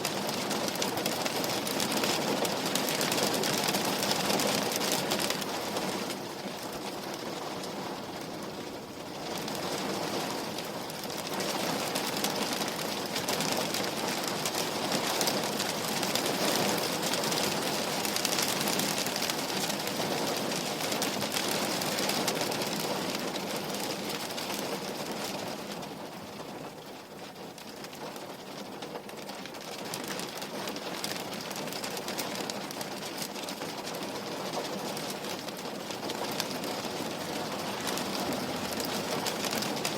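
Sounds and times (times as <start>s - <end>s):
rain on a window pane: 0.0s - 39.9s.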